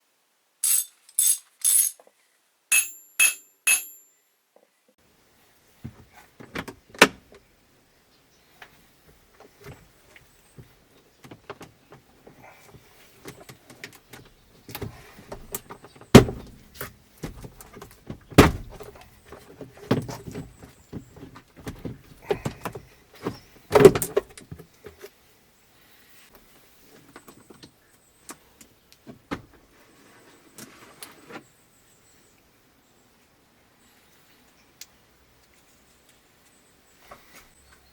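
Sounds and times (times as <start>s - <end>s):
sharp thumps: 2.7s - 4.0s.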